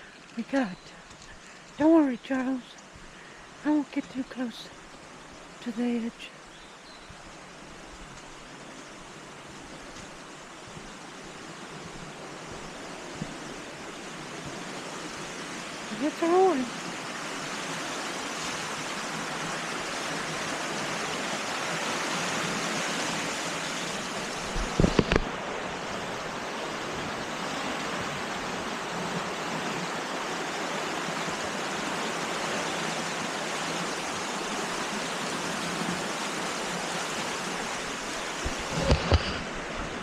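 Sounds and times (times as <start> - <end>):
river rushing: 1.0 - 40.0.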